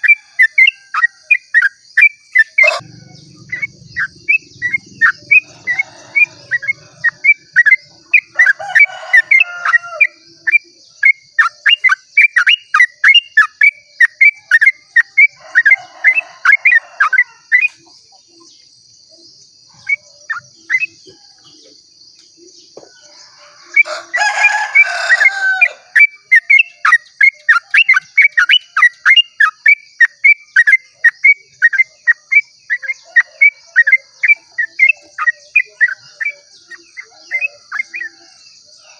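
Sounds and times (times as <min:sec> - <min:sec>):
bird singing rapid call: 0:00.0 - 0:38.9.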